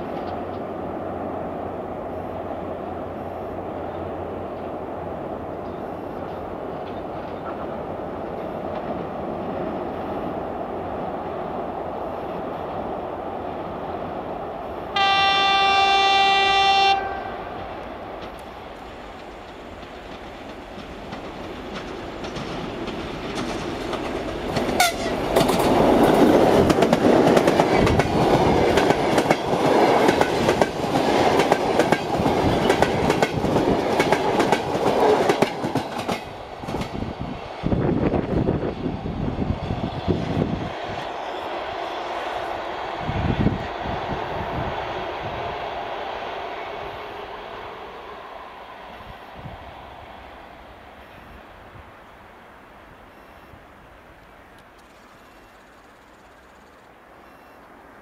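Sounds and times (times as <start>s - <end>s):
clickety-clack of wheels on rails: 0.0s - 0.9s, 3.8s - 14.3s, 17.5s - 46.2s
diesel locomotive engine: 0.0s - 58.0s
train horn blast: 14.9s - 17.6s, 24.8s - 25.2s.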